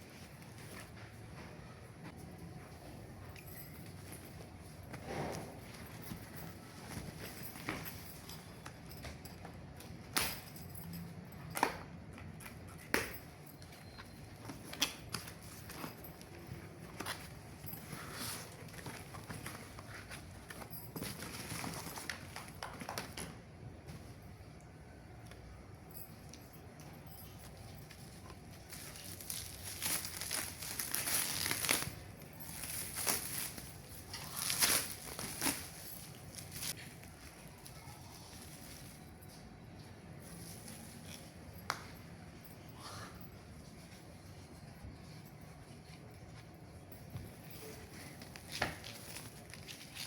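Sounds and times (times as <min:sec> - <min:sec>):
low steady hum: 0:00.0 - 0:50.0
packaging crinkling and rustling: 0:14.4 - 0:23.2, 0:27.8 - 0:39.2, 0:47.6 - 0:50.0.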